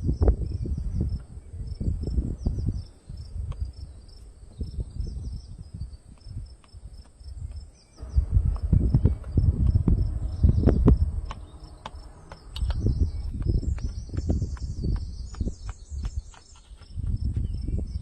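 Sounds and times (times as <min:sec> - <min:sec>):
crickets chirping: 0:00.0 - 0:18.0
low rumble: 0:08.0 - 0:16.3.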